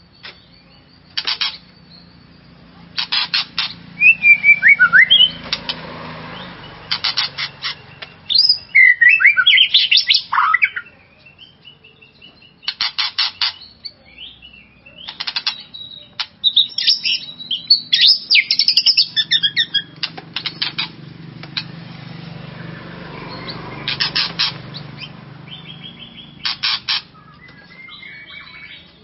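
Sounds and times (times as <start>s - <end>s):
bird singing whistled phrases: 4.0s - 5.4s, 7.8s - 12.7s, 13.5s - 19.9s, 27.1s - 29.0s.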